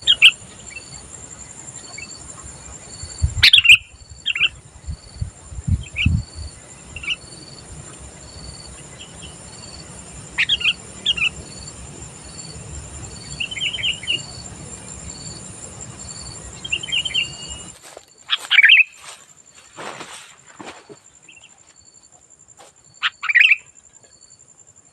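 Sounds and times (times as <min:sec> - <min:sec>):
bird chirps and warbles: 0:00.0 - 0:04.6, 0:08.5 - 0:11.7, 0:12.3 - 0:15.4, 0:16.0 - 0:19.0, 0:22.9 - 0:24.4.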